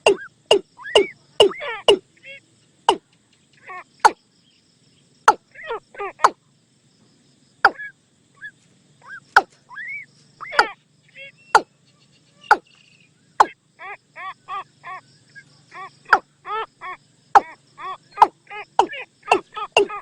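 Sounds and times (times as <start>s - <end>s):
bird clicking knocks: 0.0s - 2.0s, 18.8s - 20.0s
bird whistled notes: 0.1s - 2.0s.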